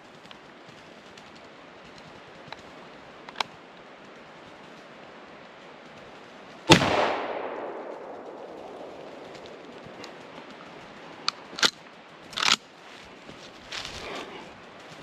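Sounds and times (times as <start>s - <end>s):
shotgun shot echoing: 6.7s - 10.1s.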